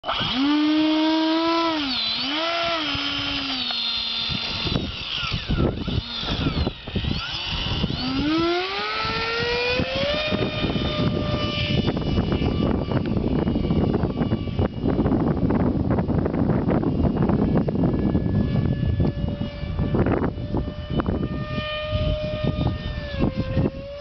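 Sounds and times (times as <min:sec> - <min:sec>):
electric ducted fan whining: 0:00.0 - 0:24.0
wind buffeting microphone: 0:00.1 - 0:24.0.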